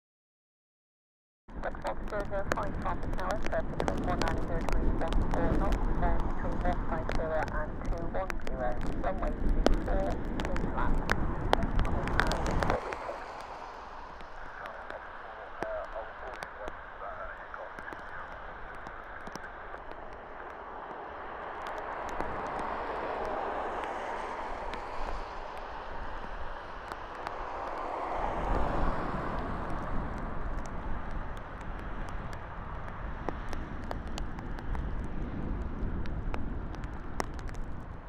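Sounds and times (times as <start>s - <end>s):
jet engines landing: 1.6s - 35.0s
sharp ticks: 2.1s - 16.8s.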